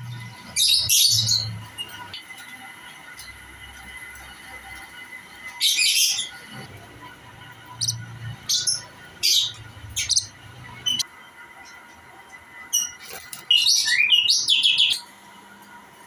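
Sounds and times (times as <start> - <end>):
lovebirds chirping: 7.7 - 11.0.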